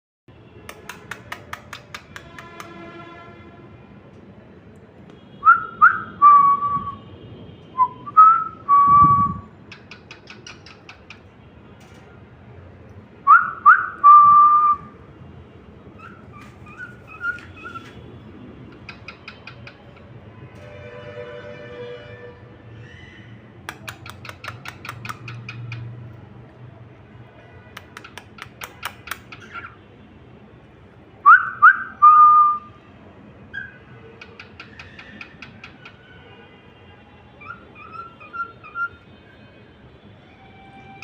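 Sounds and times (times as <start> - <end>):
rapid bird clicks: 0.7 - 2.7, 9.7 - 11.2, 23.6 - 25.8, 27.7 - 29.6, 34.2 - 36.0
cockatiel whistling: 16.0 - 17.9, 31.3 - 32.7, 33.6 - 35.7, 37.4 - 38.9.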